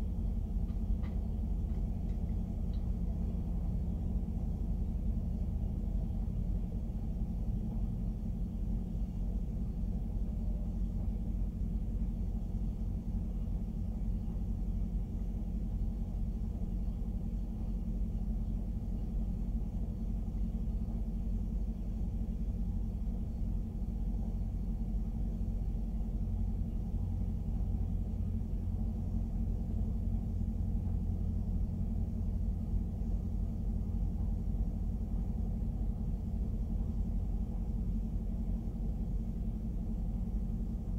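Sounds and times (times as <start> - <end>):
freight train wheels rumbling: 0.0 - 13.5.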